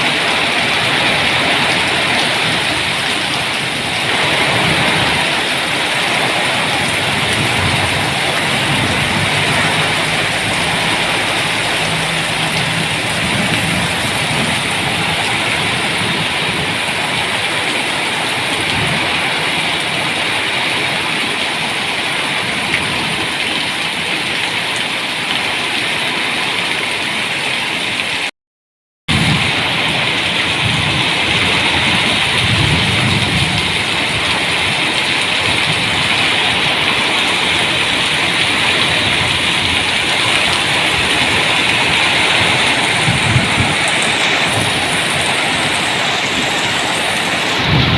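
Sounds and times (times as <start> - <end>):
heavy rain hissing: 0.0 - 26.6, 29.2 - 47.9
low rumble: 6.8 - 17.0.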